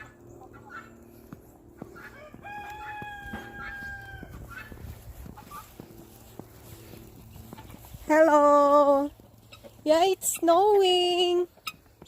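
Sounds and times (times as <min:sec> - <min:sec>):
chickens clucking: 0:00.0 - 0:12.0
rooster crowing: 0:02.0 - 0:04.8.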